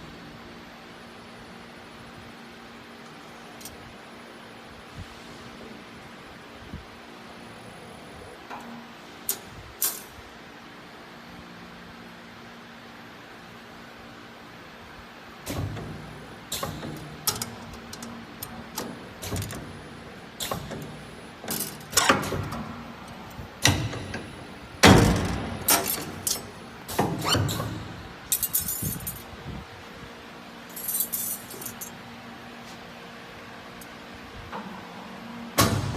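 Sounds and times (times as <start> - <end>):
metallic clanks and clinks: 30.7 - 32.0.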